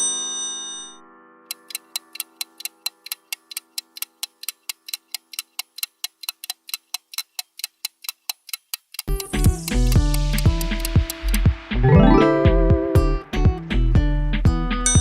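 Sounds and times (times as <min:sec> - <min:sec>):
rapid clock ticking: 0:01.5 - 0:11.8
plucked guitar music: 0:09.1 - 0:15.0.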